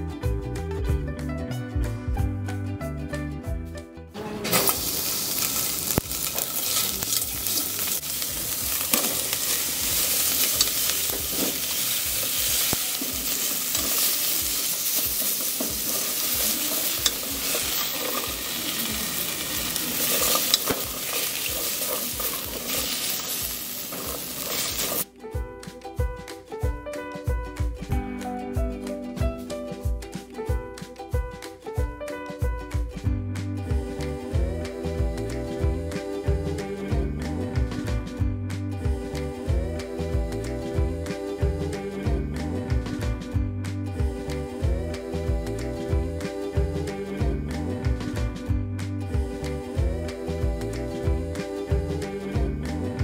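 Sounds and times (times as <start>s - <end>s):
background music: 0.0s - 53.0s
food sizzling in a pot: 4.5s - 25.1s
chopsticks scraping a pot: 8.7s - 25.0s.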